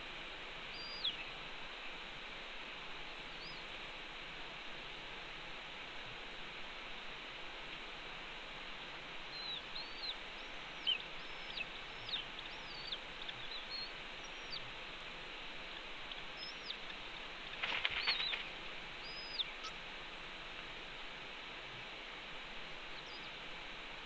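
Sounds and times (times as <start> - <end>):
background hiss: 0.0 - 24.0
bird chirping: 0.7 - 1.4, 3.4 - 3.7, 9.3 - 14.8, 15.6 - 19.8, 22.9 - 23.4
rustling scuffle: 17.5 - 18.5.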